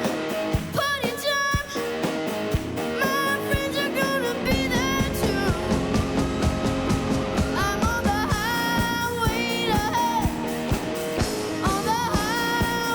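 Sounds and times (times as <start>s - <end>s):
drums: 0.0s - 12.9s
guitar: 0.0s - 12.9s
boy singing: 0.7s - 1.9s, 3.0s - 6.0s, 7.4s - 10.6s, 11.5s - 12.9s.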